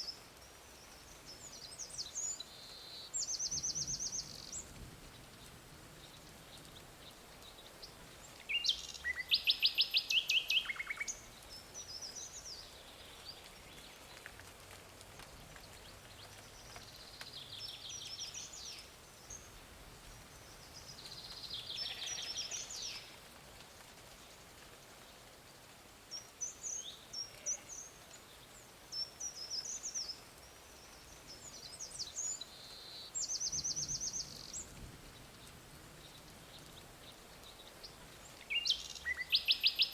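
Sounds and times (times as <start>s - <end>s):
faint outdoor hiss: 0.0s - 39.9s
songbirds trilling: 20.4s - 23.2s.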